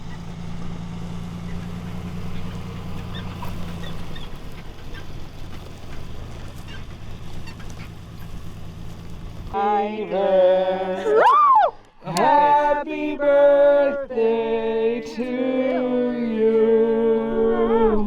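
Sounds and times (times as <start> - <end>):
low engine-like hum: 0.0 - 18.0
person singing loudly: 9.6 - 18.0.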